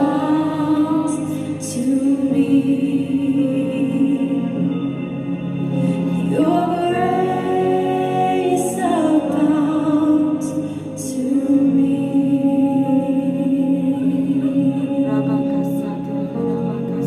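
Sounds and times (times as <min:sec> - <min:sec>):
sustained worship music accompaniment: 0:00.0 - 0:17.0
person singing a long note: 0:06.2 - 0:17.0.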